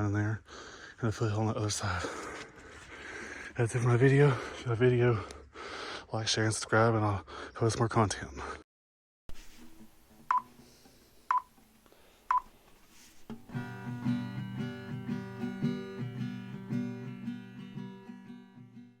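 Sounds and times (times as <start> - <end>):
plucked acoustic guitar music: 13.2 - 19.0.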